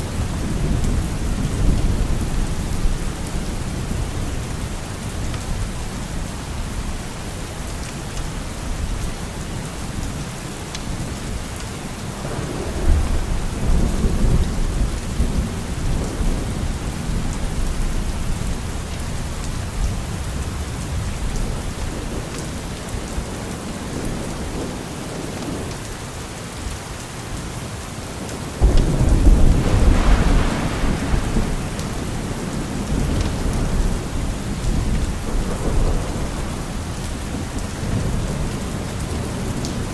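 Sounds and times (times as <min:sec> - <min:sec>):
steady rain falling: 0:00.0 - 0:39.9
thunder rumbling: 0:11.8 - 0:18.5, 0:28.6 - 0:39.2.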